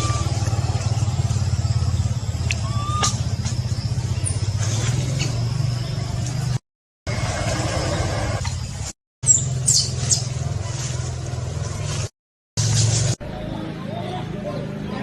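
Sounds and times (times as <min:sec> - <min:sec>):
low pulsing engine drone: 0:00.0 - 0:15.0.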